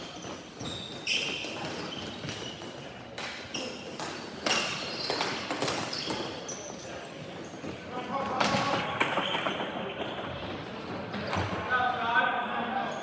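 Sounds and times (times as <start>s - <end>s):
shoe squeaks on court floor: 0.0s - 2.9s, 3.5s - 7.8s.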